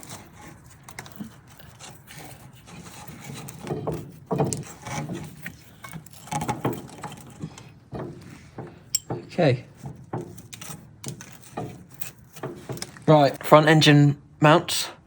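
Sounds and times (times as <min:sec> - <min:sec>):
tools scraping and knocking: 0:00.0 - 0:13.5.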